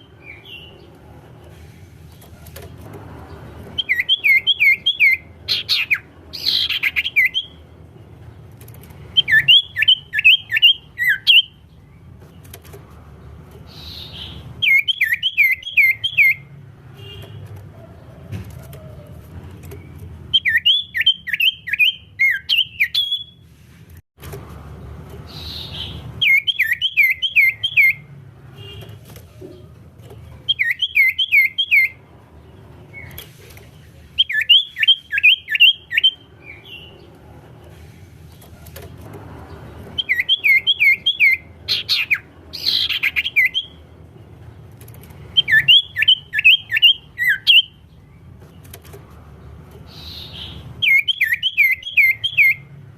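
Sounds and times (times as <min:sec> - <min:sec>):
bird singing whistled notes: 0:03.8 - 0:07.6, 0:09.2 - 0:11.6, 0:13.7 - 0:16.5, 0:20.3 - 0:23.4, 0:25.4 - 0:28.1, 0:30.5 - 0:32.0, 0:34.2 - 0:36.9, 0:40.0 - 0:43.8, 0:45.3 - 0:47.8, 0:49.9 - 0:52.7.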